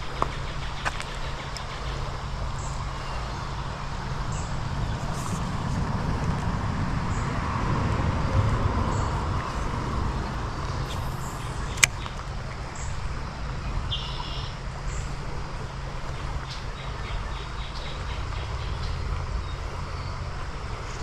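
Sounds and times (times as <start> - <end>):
road vehicle passing: 0.0 - 21.0.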